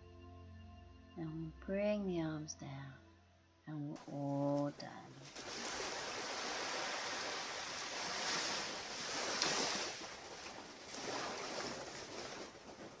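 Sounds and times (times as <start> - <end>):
surf washing onto a beach: 5.2 - 13.0.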